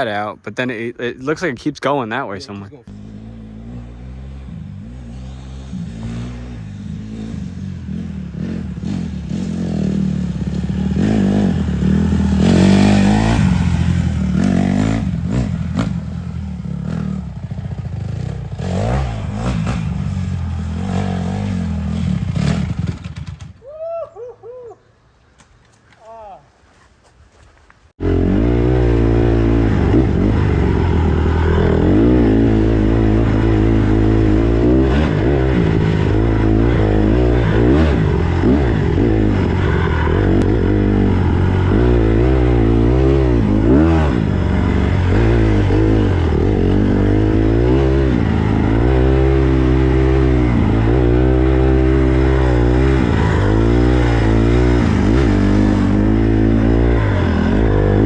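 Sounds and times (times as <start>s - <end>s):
dirt bike engine revving: 2.9s - 23.6s, 28.0s - 58.0s.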